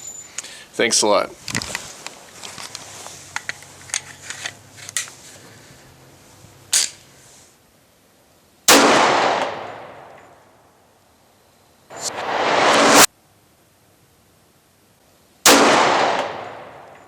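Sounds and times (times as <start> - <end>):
light clicks and handling: 1.4 - 5.5
loud gunshot: 8.7 - 10.0, 12.0 - 13.1, 15.5 - 16.9.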